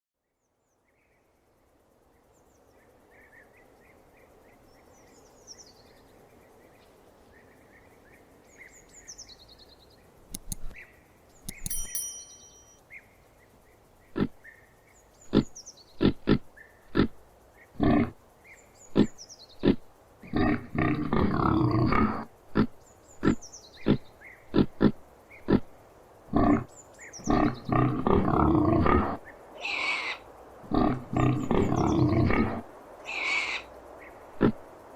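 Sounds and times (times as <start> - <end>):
faint bird chirps: 0.2 - 17.0
pig grunting: 15.3 - 17.2, 17.8 - 18.2, 18.9 - 25.7, 26.3 - 26.7, 27.3 - 29.2, 30.6 - 32.6.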